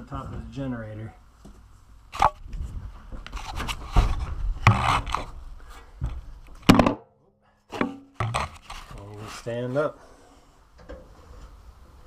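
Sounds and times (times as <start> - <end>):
hard objects scraping and clattering: 3.3 - 5.8, 7.8 - 9.5
sharp knocks: 6.6 - 7.1.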